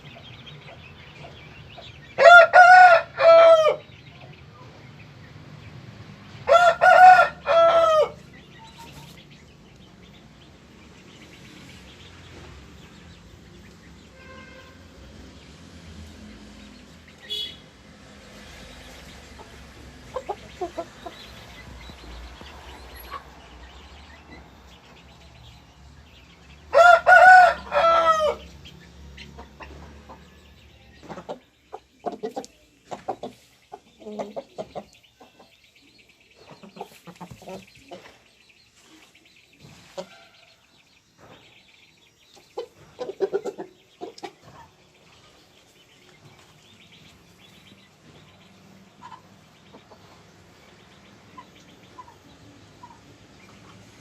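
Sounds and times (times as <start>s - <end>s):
rooster crowing: 2.2s - 3.8s, 6.4s - 8.2s, 26.7s - 28.5s
chicken clucking: 19.2s - 25.1s, 26.7s - 54.0s.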